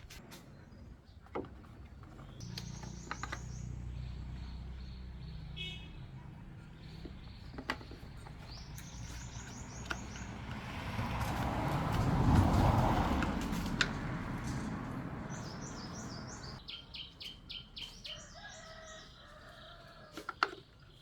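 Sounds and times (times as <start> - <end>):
car engine humming: 2.2 - 16.6.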